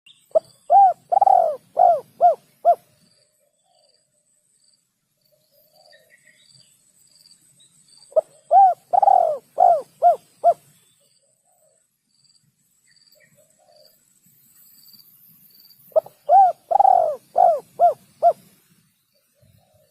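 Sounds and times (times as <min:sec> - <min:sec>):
dove cooing: 0:00.4 - 0:02.9, 0:08.2 - 0:10.7, 0:16.0 - 0:18.6.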